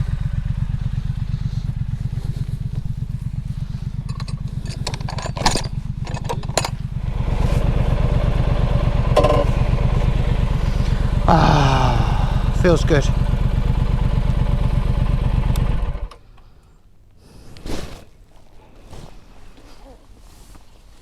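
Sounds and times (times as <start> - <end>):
motorcycle engine running: 0.0 - 16.2.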